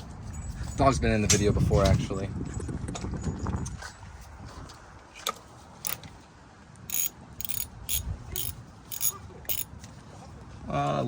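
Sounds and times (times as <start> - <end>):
socket ratchet clicking: 6.9 - 9.7.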